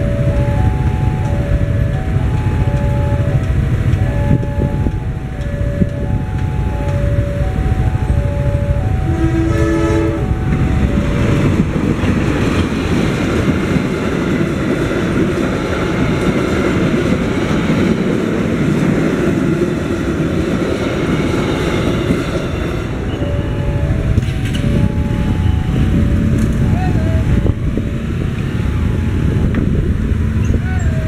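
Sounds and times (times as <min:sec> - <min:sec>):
two-tone crossing alarm: 0:00.0 - 0:12.7, 0:21.0 - 0:29.3
train wheels rumbling on rails: 0:00.0 - 0:31.0
train horn blast: 0:09.0 - 0:10.7.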